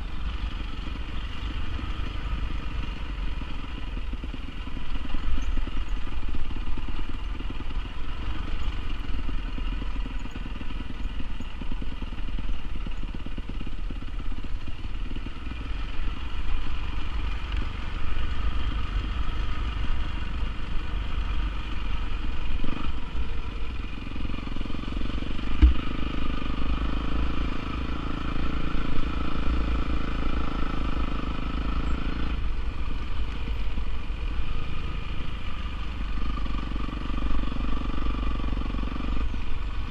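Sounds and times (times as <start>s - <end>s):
dirt bike engine running: 0.0s - 39.9s
sharp knock: 25.6s - 25.9s.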